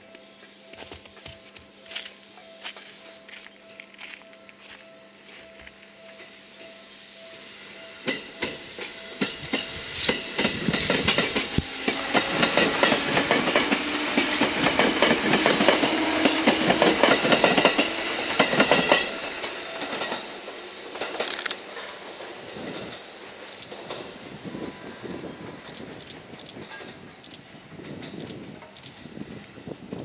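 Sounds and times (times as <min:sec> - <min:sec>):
electric train passing: 0:00.0 - 0:30.0
wheels clicking over rail joints: 0:08.0 - 0:24.3.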